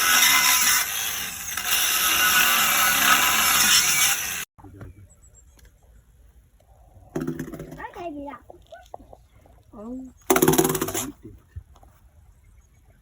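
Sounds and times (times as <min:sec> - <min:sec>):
angle grinder cutting metal: 0:00.0 - 0:04.5.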